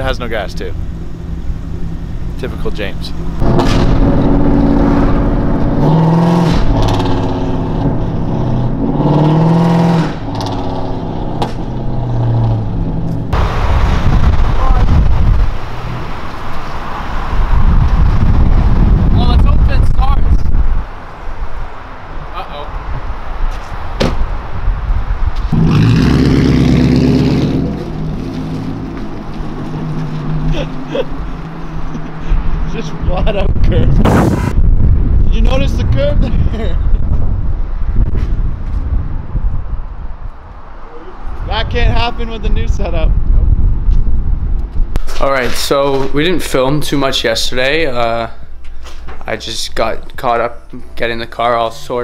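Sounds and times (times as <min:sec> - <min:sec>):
car engine accelerating hard: 0:03.2 - 0:14.5, 0:25.5 - 0:32.8.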